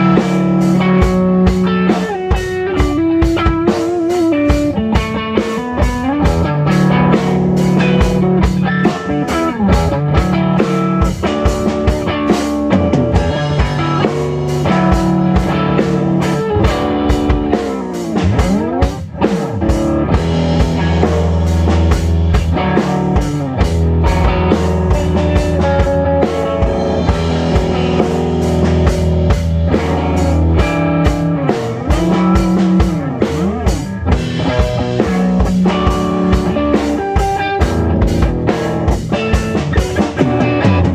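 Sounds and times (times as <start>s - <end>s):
drum kit beat: 0.0s - 40.9s
rock band playing: 0.0s - 40.9s.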